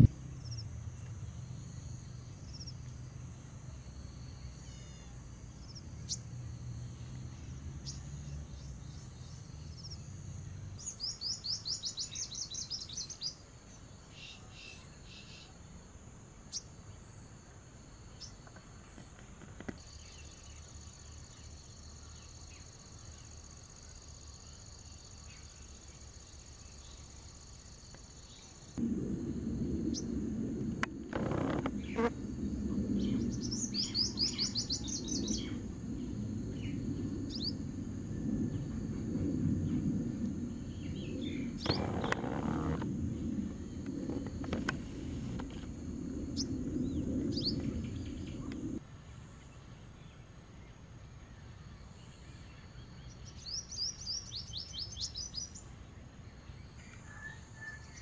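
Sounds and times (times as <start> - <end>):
low rumble: 28.8 - 48.8
small birds chirping: 31.1 - 37.8, 39.6 - 42.9, 43.8 - 48.8.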